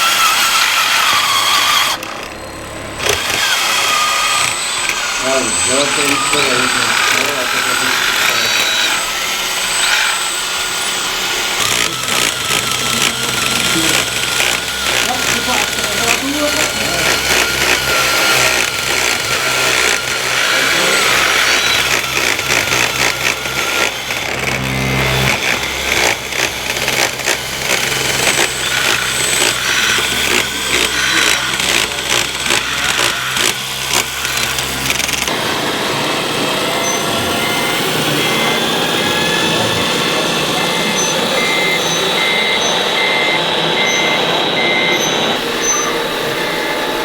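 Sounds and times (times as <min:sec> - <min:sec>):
small electric motors whining: 0:00.0 - 0:47.0.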